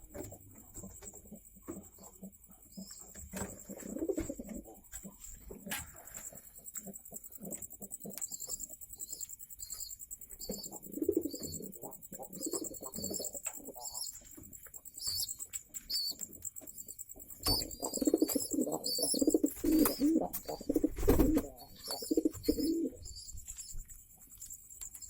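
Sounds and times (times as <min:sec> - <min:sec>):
pigeons cooing: 0:00.0 - 0:08.5, 0:10.4 - 0:14.2, 0:17.4 - 0:23.8.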